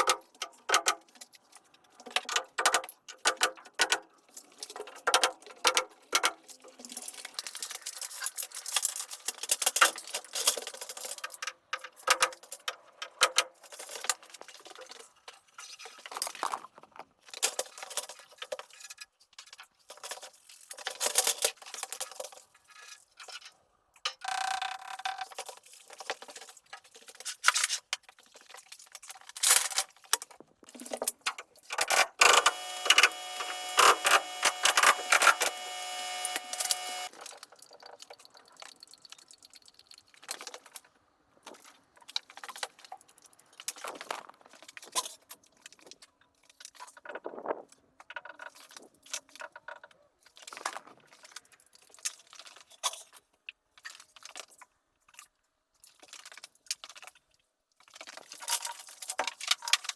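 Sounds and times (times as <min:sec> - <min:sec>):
power tool running: 0:31.9 - 0:37.2.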